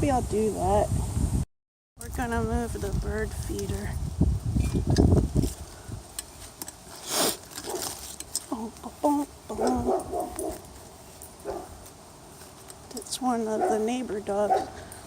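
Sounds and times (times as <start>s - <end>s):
rustling handling noise: 4.6s - 15.0s
dog barking: 9.5s - 10.6s, 11.4s - 11.8s, 13.6s - 13.8s, 14.5s - 14.8s.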